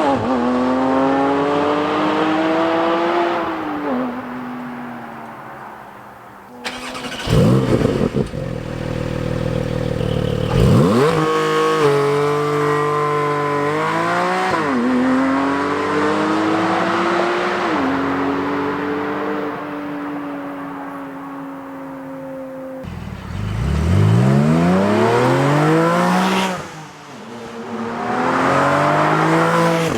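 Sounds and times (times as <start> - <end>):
car exhaust revving: 6.7 - 12.9, 22.8 - 26.5.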